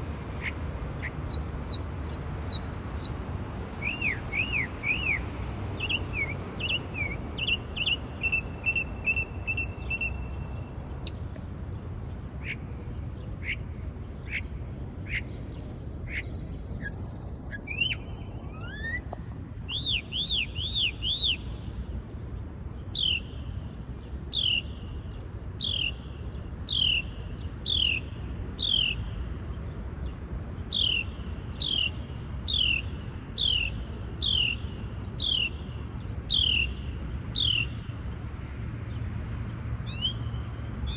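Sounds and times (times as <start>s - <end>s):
songbird chirping and trilling: 0.1s - 11.3s, 12.4s - 21.9s, 22.8s - 29.2s, 30.6s - 38.2s, 39.8s - 40.9s.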